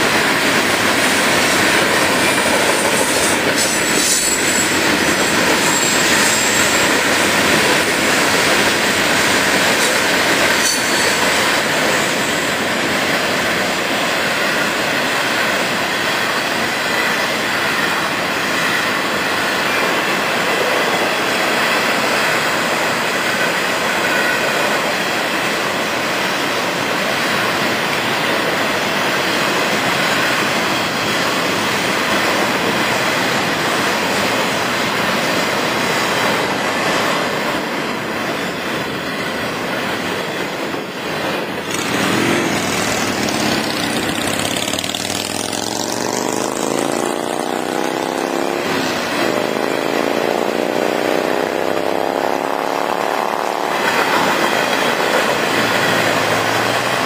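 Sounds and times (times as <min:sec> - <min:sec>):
train wheels clattering on rail: 0:00.0 - 0:57.0
vehicle engine accelerating: 0:41.7 - 0:53.9.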